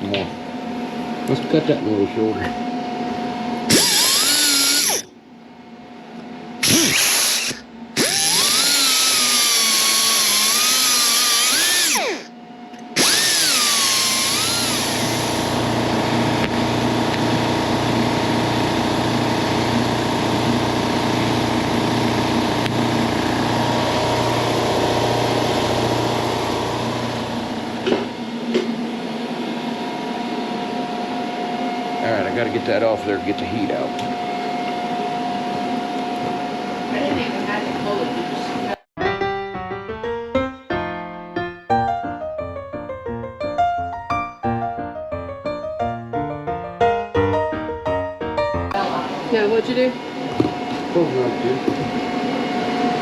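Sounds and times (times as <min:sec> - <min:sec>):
power tool cutting steel: 0:03.7 - 0:05.1, 0:06.6 - 0:27.8.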